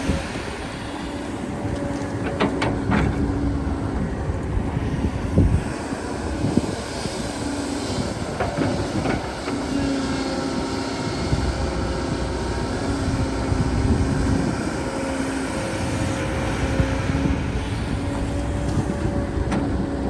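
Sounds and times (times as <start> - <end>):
excavator engine rumbling: 0.0 - 20.0
excavator metal clanks: 1.7 - 3.9, 8.2 - 10.0.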